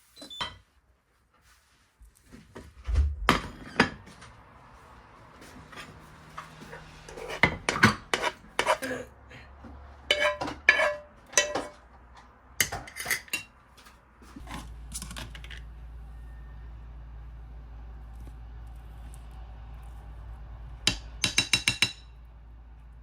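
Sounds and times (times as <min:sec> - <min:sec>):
dishes and cutlery clinking: 0:05.6 - 0:09.0, 0:10.1 - 0:11.8, 0:12.6 - 0:13.5.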